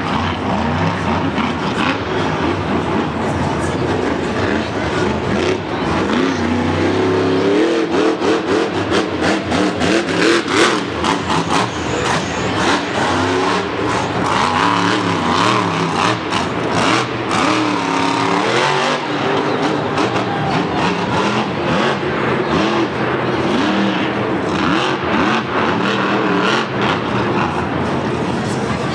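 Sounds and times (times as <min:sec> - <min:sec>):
truck engine revving hard: 0:00.0 - 0:28.9.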